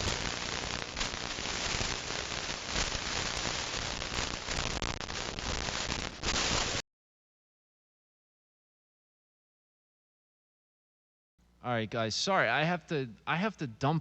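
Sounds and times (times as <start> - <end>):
faint crackles: 0.0 - 6.8
radio static hiss: 0.0 - 6.8.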